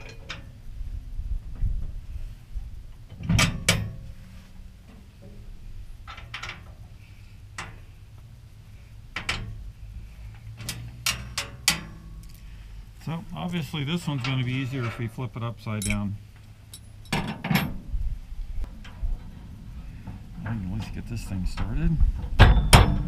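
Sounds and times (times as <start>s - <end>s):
metal parts clicking and clanking: 0.0s - 0.5s, 3.0s - 4.1s, 6.0s - 7.0s, 9.1s - 9.6s, 10.3s - 12.5s, 13.5s - 17.8s, 18.6s - 23.0s.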